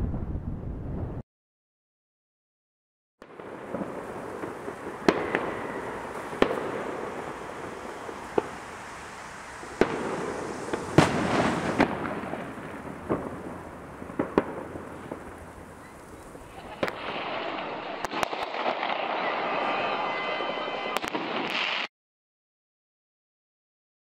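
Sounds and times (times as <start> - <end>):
fireworks bangs: 3.2 - 21.9
fireworks crackling and rumbling: 3.2 - 21.9.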